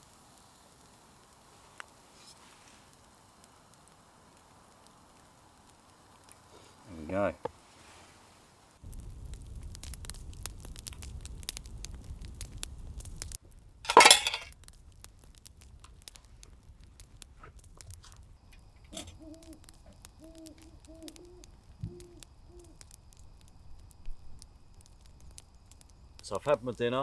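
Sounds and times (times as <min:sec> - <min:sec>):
faint crackling clicks: 0:00.0 - 0:07.6, 0:08.8 - 0:13.6, 0:14.4 - 0:27.0
owl hooting: 0:18.9 - 0:22.9.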